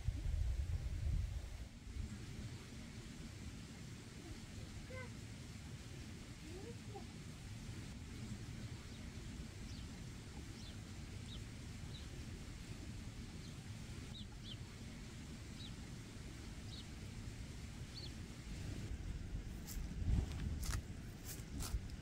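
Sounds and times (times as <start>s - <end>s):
low outdoor rumble: 0.0s - 22.0s
bird chirping: 13.4s - 14.6s, 15.5s - 15.8s, 16.7s - 16.9s.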